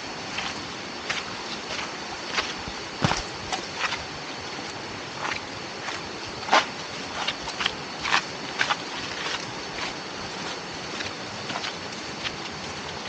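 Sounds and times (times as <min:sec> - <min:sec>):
steady hiss: 0:00.0 - 0:13.0
footsteps or short knocks: 0:00.4 - 0:04.0.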